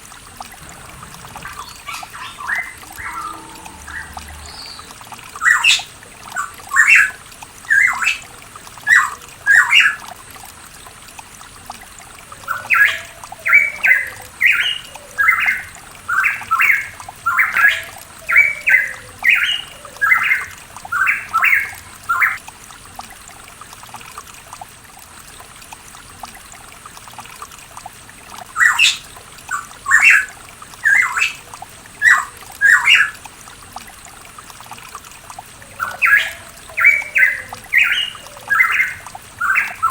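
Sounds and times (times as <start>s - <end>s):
bird calling sharp notes: 0.6s - 5.9s.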